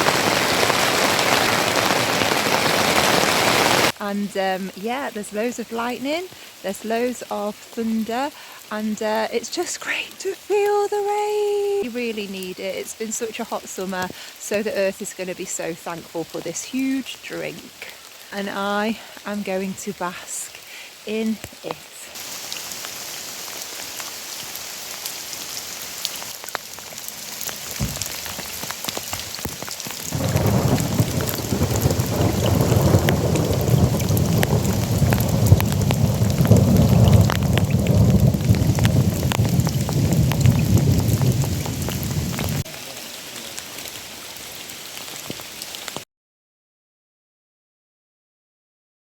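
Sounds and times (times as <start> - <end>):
heavy rain: 0.0 - 46.0
low thunder rumble: 30.1 - 42.6.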